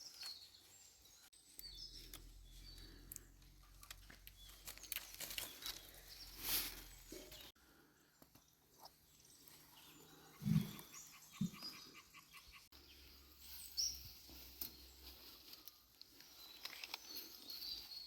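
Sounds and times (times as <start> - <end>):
faint bird chirps: 4.3 - 18.0.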